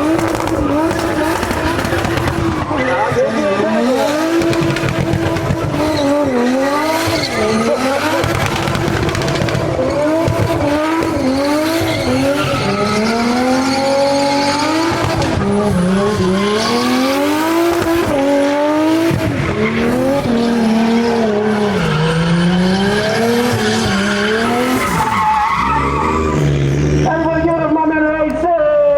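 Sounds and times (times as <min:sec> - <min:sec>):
car engine revving: 0:00.0 - 0:27.9
tyre squeal: 0:00.2 - 0:08.6, 0:11.1 - 0:14.7, 0:19.4 - 0:26.6.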